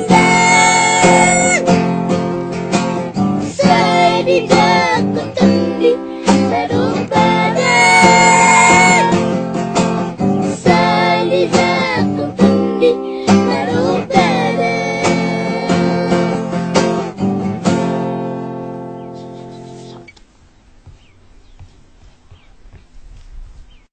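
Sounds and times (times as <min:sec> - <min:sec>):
child singing: 0:00.0 - 0:01.7, 0:03.5 - 0:09.2, 0:10.5 - 0:16.4
strummed acoustic guitar: 0:00.0 - 0:20.1.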